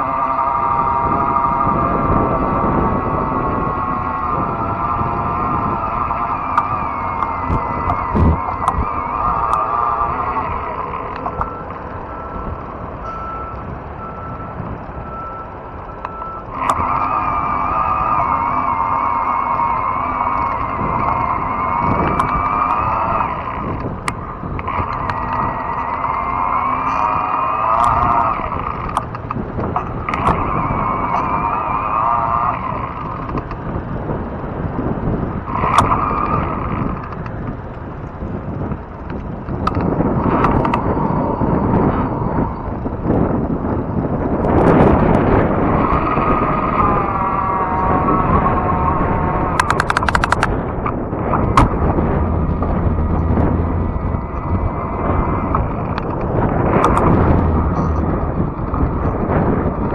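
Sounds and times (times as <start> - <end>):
e-bike rolling rumble: 0.0 - 59.9
wavering whine: 0.0 - 59.9
wind and tyre noise: 0.0 - 59.9
vehicle backup alarm beeping: 1.0 - 25.9, 48.8 - 55.7
sharp click: 22.1 - 22.9, 49.6 - 50.5, 56.8 - 57.2.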